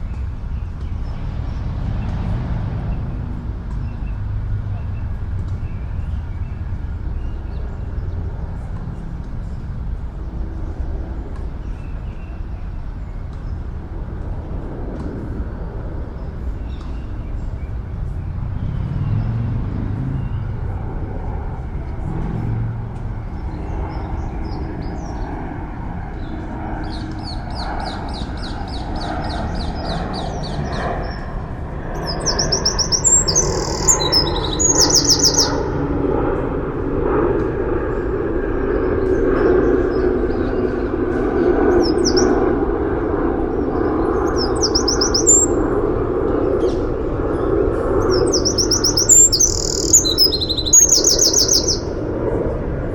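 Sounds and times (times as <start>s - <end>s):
city traffic drone: 0.0s - 52.9s
songbird trilling: 26.9s - 35.9s, 41.8s - 42.4s, 44.2s - 45.6s, 48.0s - 52.0s.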